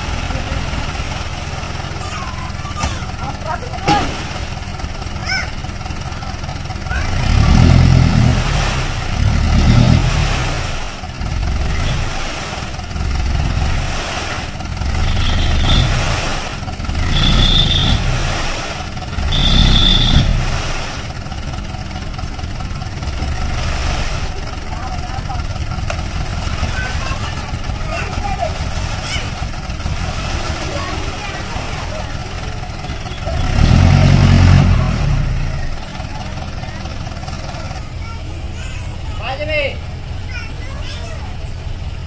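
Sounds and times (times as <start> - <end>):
diesel truck engine revving: 0.0 - 42.0.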